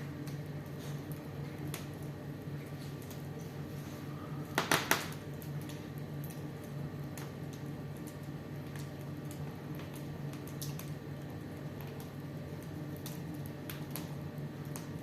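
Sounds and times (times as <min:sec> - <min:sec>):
fireplace fire crackling: 0:00.0 - 0:15.0
low steady hum: 0:00.0 - 0:15.0
loud pops of fire: 0:04.5 - 0:05.3.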